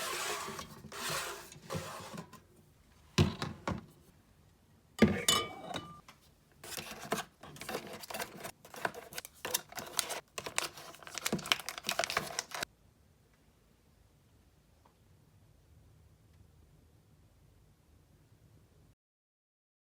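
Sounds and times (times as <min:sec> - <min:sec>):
packaging rustling: 0:06.7 - 0:12.7.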